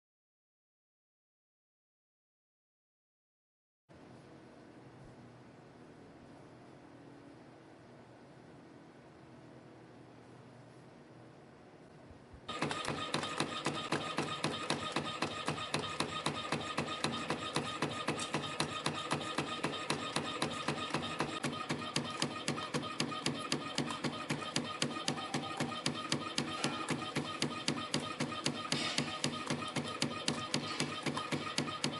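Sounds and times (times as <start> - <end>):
spring coiling machine clicking: 12.5 - 31.9.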